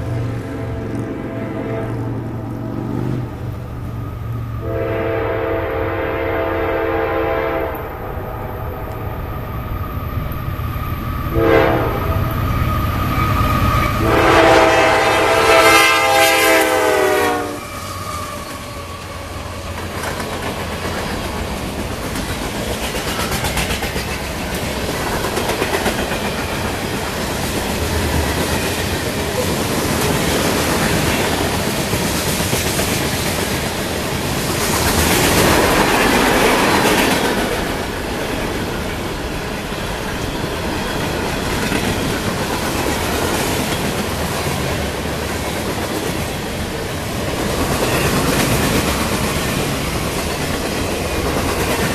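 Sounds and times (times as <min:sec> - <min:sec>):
train horn blasts: 0:00.0 - 0:02.4, 0:04.6 - 0:08.3, 0:11.3 - 0:12.4, 0:13.1 - 0:18.0
train wheels clacking on rails: 0:08.8 - 0:51.9.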